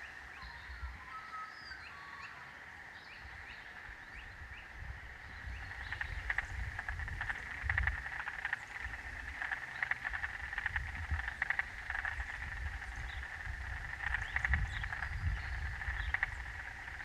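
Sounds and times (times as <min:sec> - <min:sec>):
frogs calling: 0:00.0 - 0:17.0.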